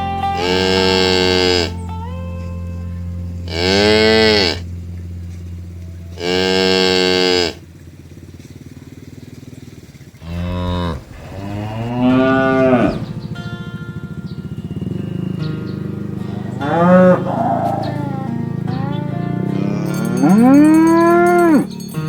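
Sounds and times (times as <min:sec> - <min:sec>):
cows mooing: 0:00.4 - 0:01.8, 0:03.4 - 0:04.7, 0:05.6 - 0:07.7, 0:10.2 - 0:13.7, 0:14.4 - 0:22.0
steady low hum: 0:01.2 - 0:22.0.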